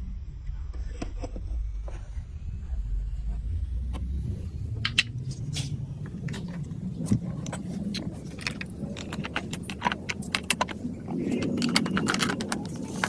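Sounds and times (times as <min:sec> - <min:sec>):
marbles rolling rumble: 0:04.8 - 0:13.0
marbles clicking on plastic track: 0:06.1 - 0:13.0.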